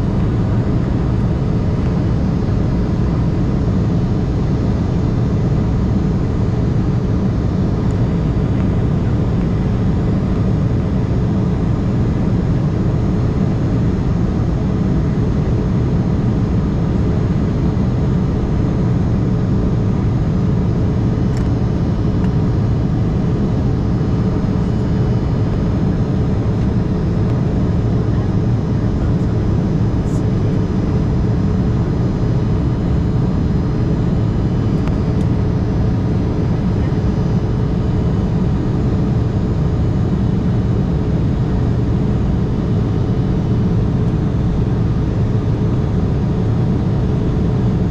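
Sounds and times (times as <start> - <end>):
faint steady hum: 0.0 - 47.9
jet engines droning: 0.0 - 47.9.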